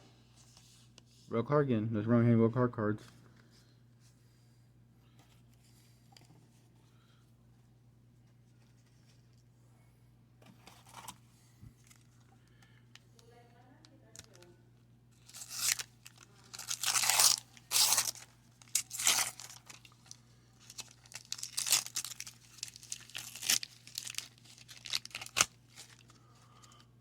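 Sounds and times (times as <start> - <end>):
wax paper wrapper tearing: 15.2 - 26.8
wrapper crackling: 15.2 - 26.8.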